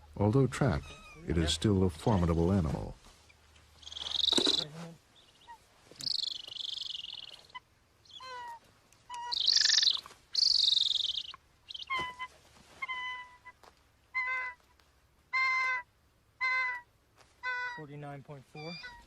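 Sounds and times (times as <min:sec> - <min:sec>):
eagle calling: 0:03.2 - 0:14.7, 0:15.3 - 0:19.0.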